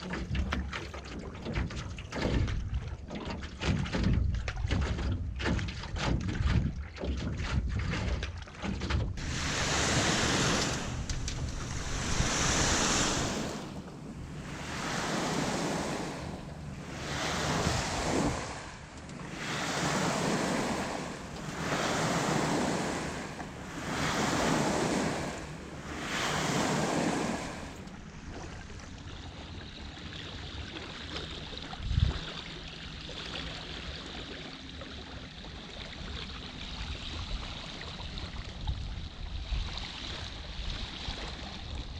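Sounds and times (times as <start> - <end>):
paddle splashing through water: 0.0 - 41.9
water noise: 0.0 - 41.9
wind on microphone: 3.7 - 28.9, 31.7 - 32.4.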